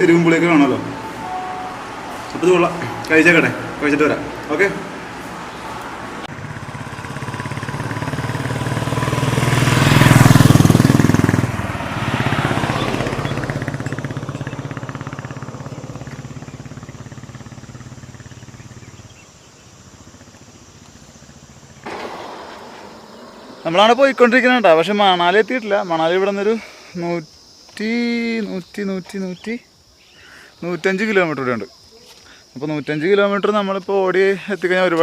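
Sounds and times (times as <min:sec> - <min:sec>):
outdoor background: 0:00.0 - 0:35.0
motorcycle engine running: 0:06.3 - 0:23.8.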